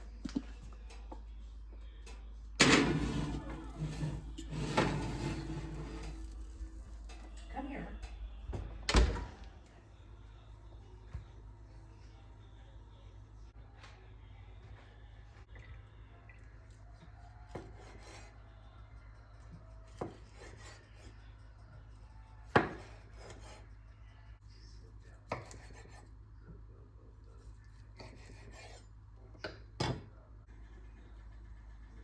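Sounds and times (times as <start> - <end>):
soft scraping and rubbing: 2.9 - 7.1.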